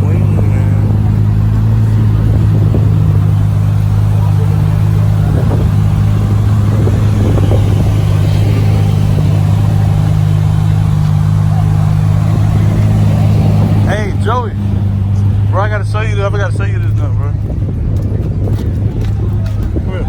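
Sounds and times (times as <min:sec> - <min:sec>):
car engine idling: 0:00.0 - 0:20.0
faint voices: 0:00.0 - 0:20.0.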